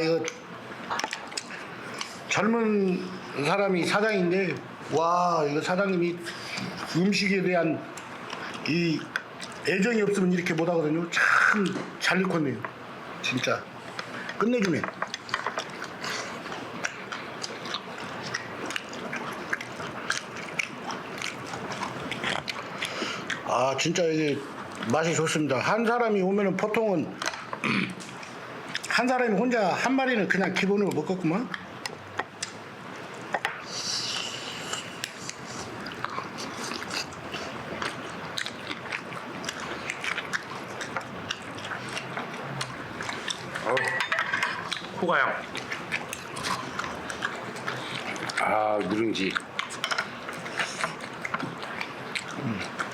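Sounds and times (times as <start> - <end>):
chewing food: 0.3 - 2.3, 7.9 - 10.8, 13.2 - 25.2, 26.6 - 29.0, 34.0 - 52.9.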